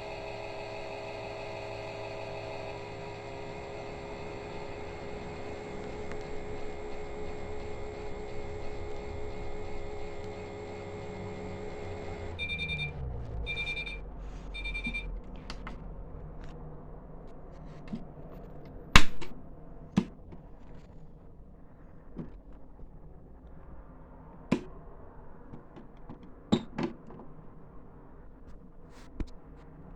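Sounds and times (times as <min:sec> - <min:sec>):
toy washing machine motor humming: 0:00.0 - 0:14.0
short electronic beeps: 0:12.4 - 0:14.0, 0:14.6 - 0:15.1.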